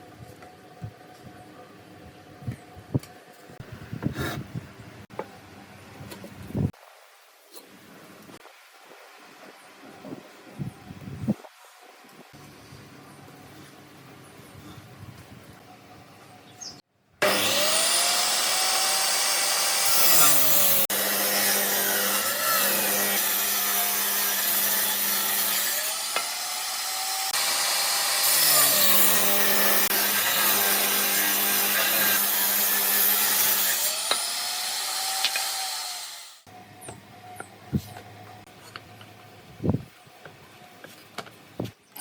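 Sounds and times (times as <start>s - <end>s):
power saw cutting wood: 17.2s - 36.5s.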